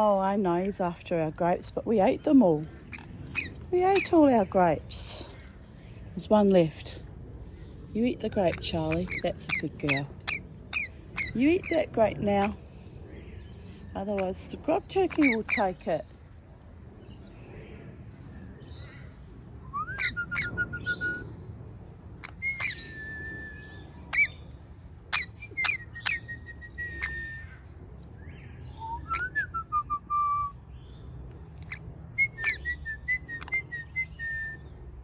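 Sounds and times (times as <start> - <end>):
bird whistled calls: 19.7 - 21.2, 22.2 - 24.4, 25.2 - 27.6, 28.7 - 30.6, 31.7 - 34.6.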